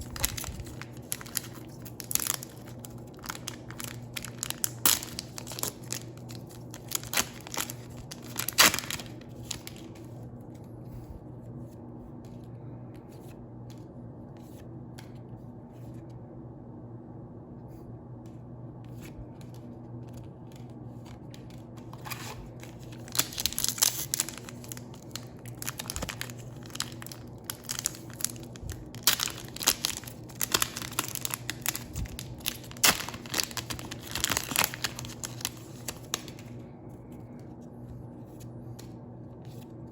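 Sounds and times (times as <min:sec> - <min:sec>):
foil wrappers crinkling and tearing: 0:00.0 - 0:10.2, 0:20.5 - 0:36.7
steady low hum: 0:00.0 - 0:39.9.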